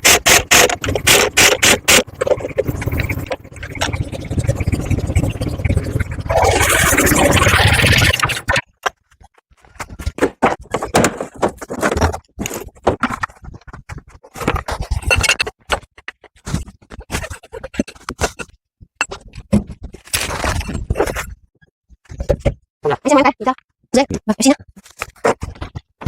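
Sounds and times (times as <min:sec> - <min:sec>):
tools scraping clicking and knocking: 0:00.0 - 0:04.0, 0:08.8 - 0:21.4.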